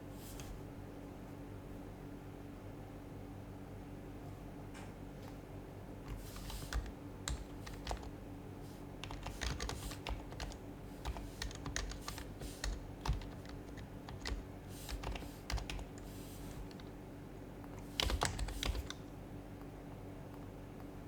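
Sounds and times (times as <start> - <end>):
keyboard typing: 6.1 - 8.2, 9.0 - 16.9, 17.7 - 19.1.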